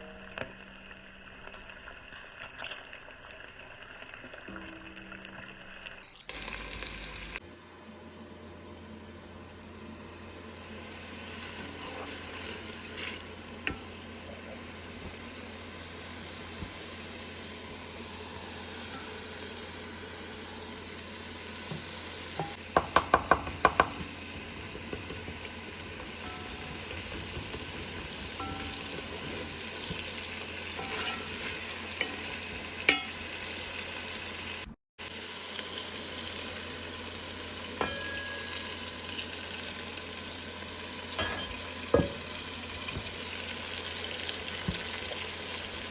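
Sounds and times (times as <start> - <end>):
food sizzling in oil: 0.0 - 45.9
spoon stirring in pot: 22.4 - 33.1.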